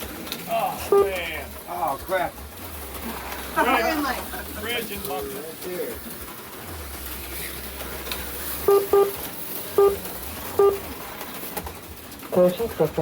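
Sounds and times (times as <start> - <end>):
short electronic beeps: 8.6 - 9.2, 9.8 - 10.0, 10.6 - 10.8.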